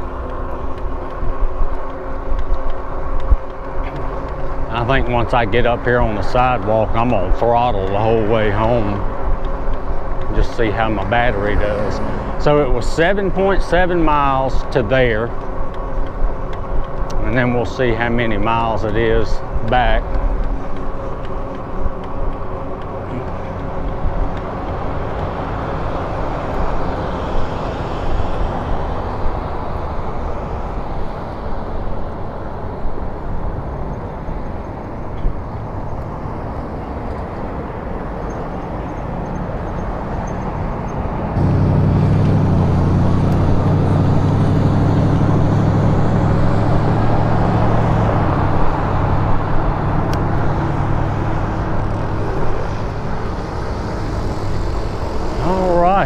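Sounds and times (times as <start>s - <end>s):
low humming rumble: 0.0s - 36.9s, 41.4s - 56.0s
wind and road noise: 0.0s - 56.0s.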